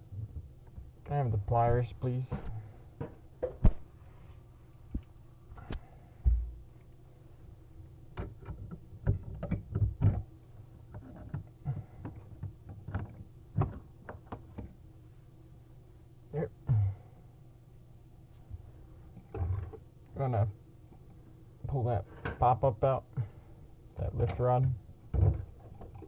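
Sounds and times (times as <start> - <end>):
dull thump: 6.2 - 6.6.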